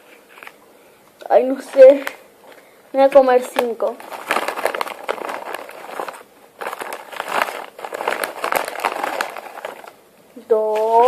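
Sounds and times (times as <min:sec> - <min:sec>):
crunching potato snacks: 0:04.0 - 0:10.0.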